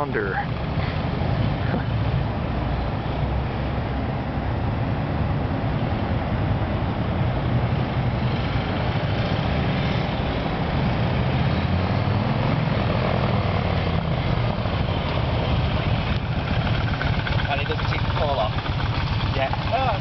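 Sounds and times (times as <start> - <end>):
motorcycle engine droning: 11.6 - 20.0.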